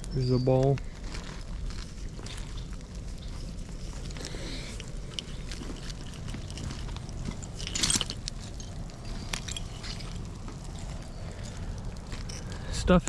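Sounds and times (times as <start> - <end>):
soil clicks and crunches: 0.0 - 13.0.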